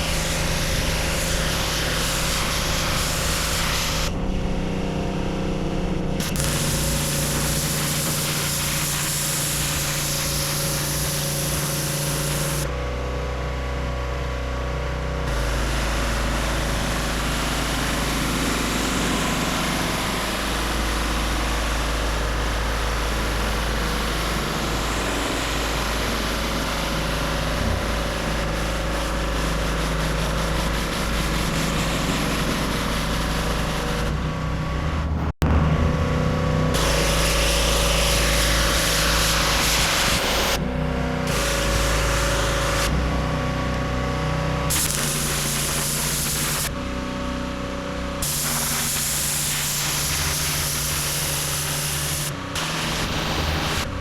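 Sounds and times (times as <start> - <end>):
high-pressure water spray hiss: 0.0 - 4.2, 6.2 - 12.7, 15.3 - 34.1, 36.8 - 40.6, 41.3 - 42.9, 44.7 - 46.7, 48.2 - 53.9
pressure washer motor drone: 0.0 - 54.0.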